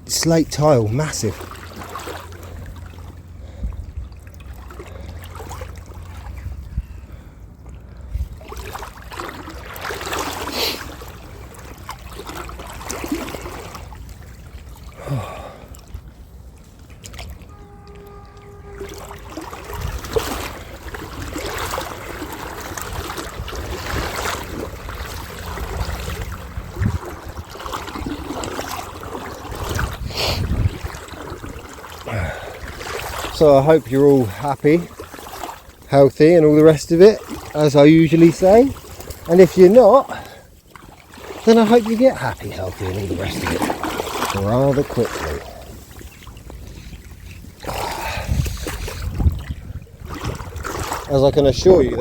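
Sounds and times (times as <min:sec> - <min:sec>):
river water splashing: 0:00.0 - 0:52.0
low rumble of handling noise: 0:11.0 - 0:41.4.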